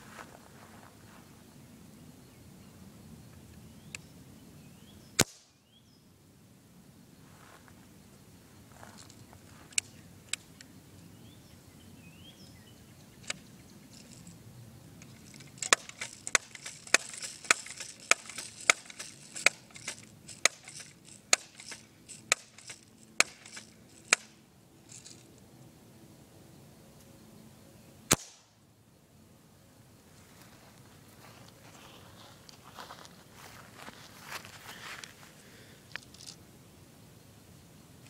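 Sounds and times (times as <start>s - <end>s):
bb gun shots: 28.1s - 28.5s.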